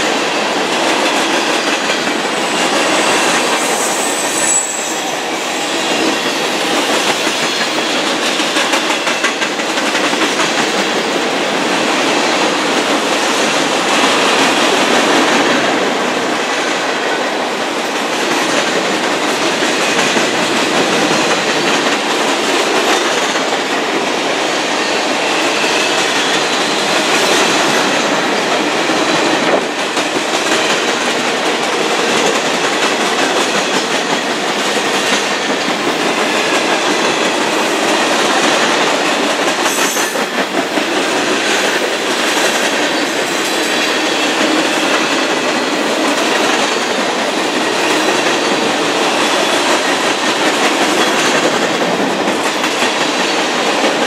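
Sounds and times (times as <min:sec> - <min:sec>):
train wheels clacking on rail: 0:00.0 - 0:54.0
high wheel squeal: 0:02.4 - 0:07.9.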